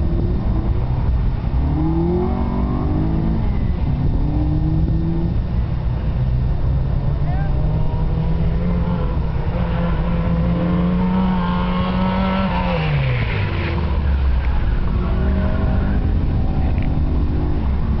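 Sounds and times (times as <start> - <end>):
car engine revving hard: 7.7 - 14.3.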